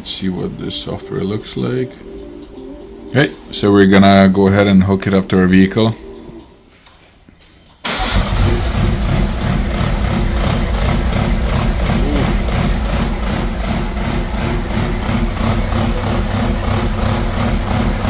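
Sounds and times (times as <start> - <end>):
car engine idling rough: 7.9 - 18.0.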